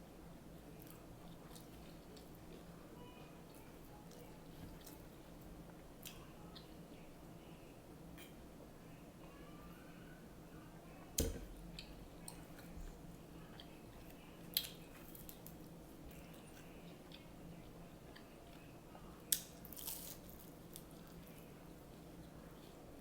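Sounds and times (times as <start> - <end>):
soft chewing: 0.5 - 23.0
egg roll crunching: 13.4 - 22.9.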